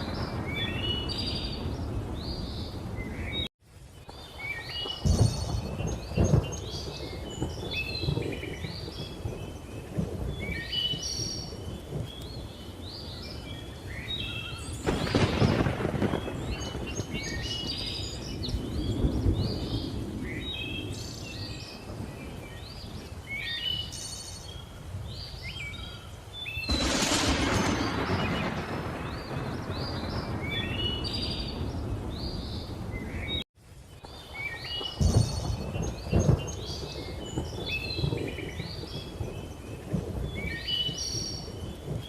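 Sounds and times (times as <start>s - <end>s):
loud thunderclap: 0.0s - 3.5s, 4.9s - 12.5s, 14.8s - 22.4s, 26.7s - 33.4s, 35.0s - 42.0s
thunder rumbling: 0.0s - 3.5s, 4.1s - 23.4s, 26.6s - 33.4s, 34.1s - 42.0s
birds chirping: 0.0s - 42.0s.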